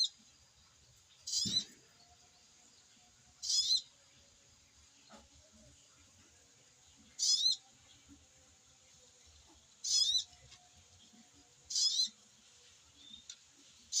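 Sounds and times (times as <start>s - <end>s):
sunbird high wavering chirps: 1.2s - 1.8s, 3.4s - 3.9s, 7.2s - 7.6s, 9.8s - 10.3s, 11.7s - 12.2s.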